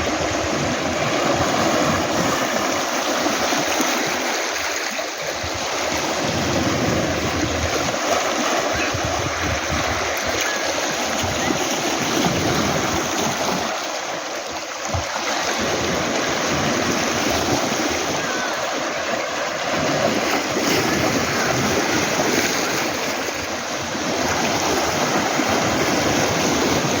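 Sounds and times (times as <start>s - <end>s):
waves washing over pebbles: 0.0s - 27.0s.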